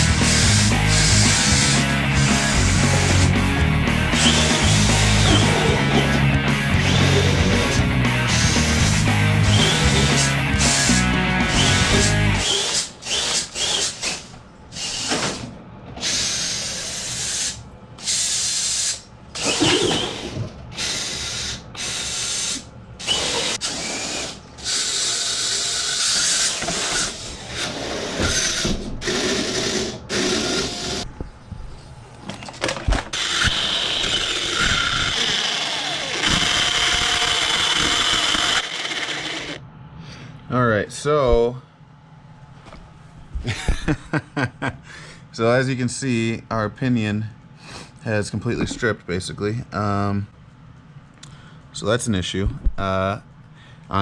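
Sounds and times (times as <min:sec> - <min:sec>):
electric motor revving in bursts: 0:00.0 - 0:14.0, 0:33.2 - 0:39.6.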